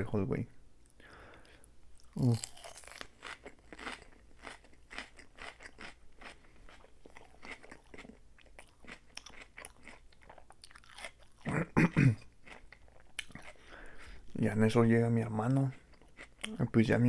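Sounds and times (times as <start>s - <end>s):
chewing crisp lettuce: 2.0s - 11.7s, 12.4s - 13.7s.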